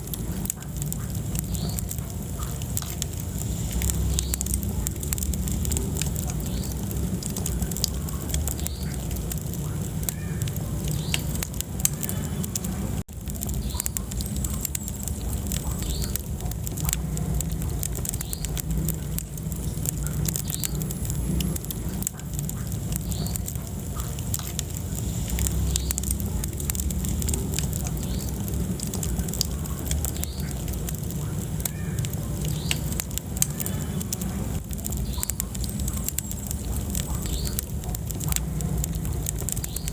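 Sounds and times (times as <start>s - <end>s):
logs crackling and popping: 0.0s - 39.9s
low rumble of flames: 0.0s - 39.9s.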